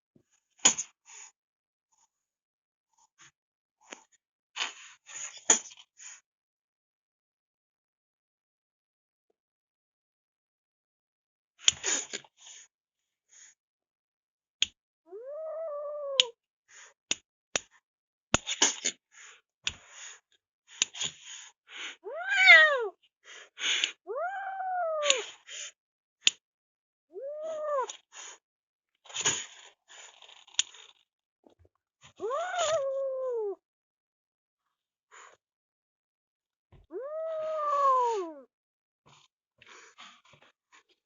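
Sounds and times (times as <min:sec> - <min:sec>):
cat meowing: 0:15.1 - 0:16.3, 0:22.1 - 0:22.9, 0:24.1 - 0:25.2, 0:27.2 - 0:27.9, 0:32.2 - 0:33.6, 0:36.9 - 0:38.4.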